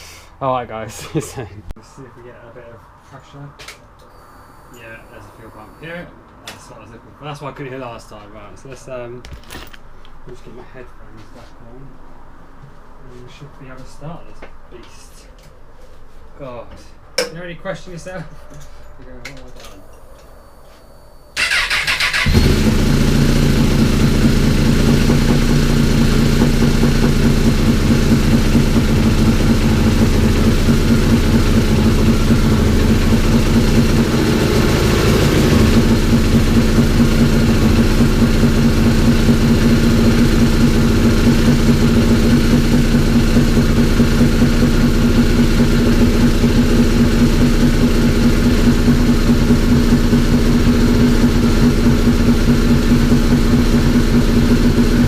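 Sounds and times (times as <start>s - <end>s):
motorcycle engine starting and idling: 21.4s - 55.0s.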